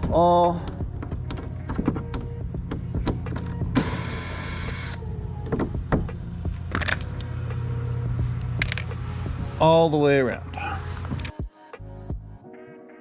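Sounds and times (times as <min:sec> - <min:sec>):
drill running: 0:03.8 - 0:05.0
screws and tools clattering: 0:08.6 - 0:08.9.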